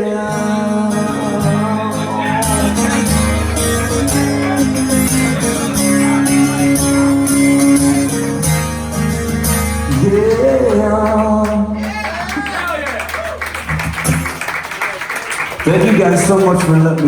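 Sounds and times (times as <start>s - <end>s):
person singing: 0.0s - 8.3s, 9.9s - 11.8s
strummed guitar chords: 0.0s - 11.8s.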